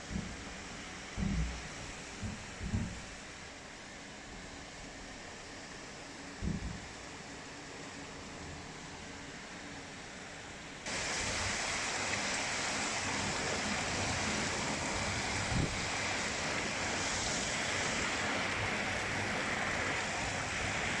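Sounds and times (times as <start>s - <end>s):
heavy rain hiss: 0.0s - 21.0s
low thump: 1.2s - 1.6s, 2.2s - 3.0s.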